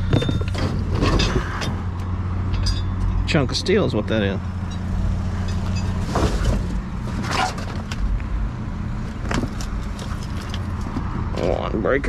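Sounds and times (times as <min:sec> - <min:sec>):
knocks and rattles: 0:00.0 - 0:03.4
vehicle engine idling: 0:00.0 - 0:12.0.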